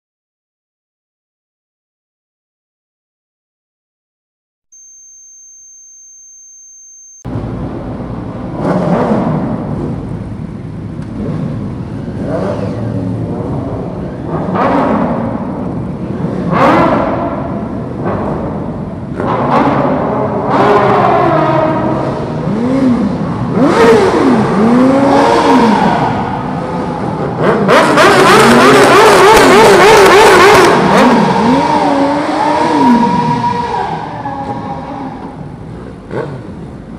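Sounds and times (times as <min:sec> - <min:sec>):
high-pitched tone: 0:04.7 - 0:07.3
motorbike engine revving: 0:11.1 - 0:33.6.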